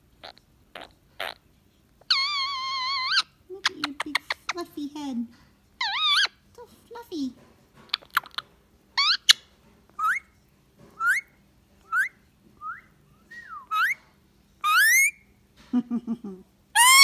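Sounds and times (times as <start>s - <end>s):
parrot whistling calls: 9.0s - 9.4s, 10.0s - 10.3s, 11.0s - 14.0s, 14.6s - 15.2s, 16.8s - 17.0s.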